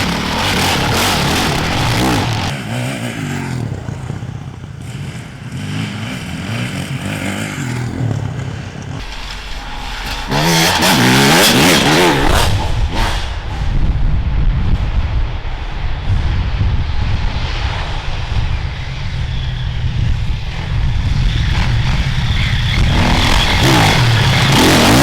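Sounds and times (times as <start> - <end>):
motorcycles revving past: 0.0 - 9.2, 10.3 - 13.4, 20.6 - 25.0.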